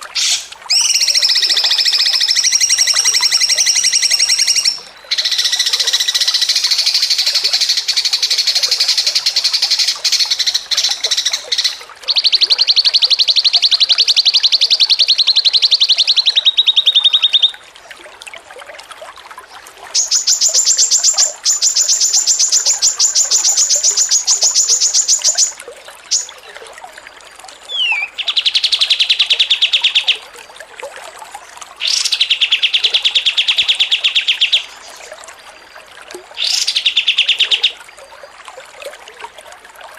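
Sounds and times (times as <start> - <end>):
songbird trilling: 0.2 - 17.6, 20.0 - 26.4, 27.7 - 30.2, 31.8 - 34.9, 36.4 - 37.8.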